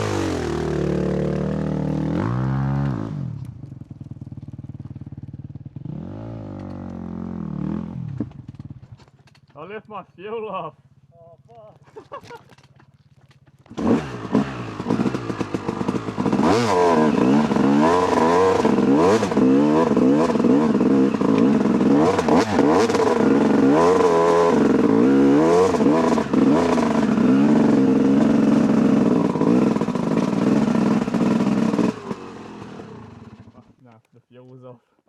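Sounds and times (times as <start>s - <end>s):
dirt bike engine revving: 0.0s - 3.5s, 4.6s - 8.7s, 13.7s - 33.7s.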